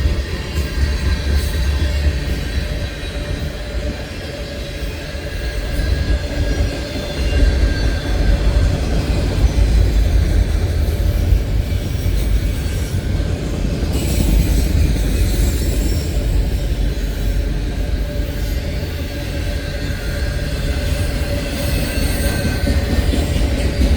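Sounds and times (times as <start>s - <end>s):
freight train wheels rumbling: 0.0s - 23.9s.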